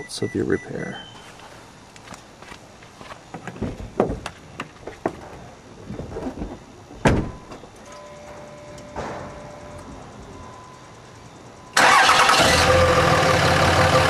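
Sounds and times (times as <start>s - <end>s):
car door slamming: 7.0s - 7.6s.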